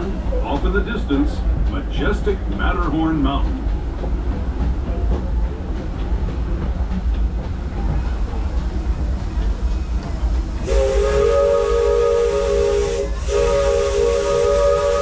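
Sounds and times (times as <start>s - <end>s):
steam train rumbling on track: 0.0s - 15.0s
steam whistle blowing: 10.6s - 15.0s.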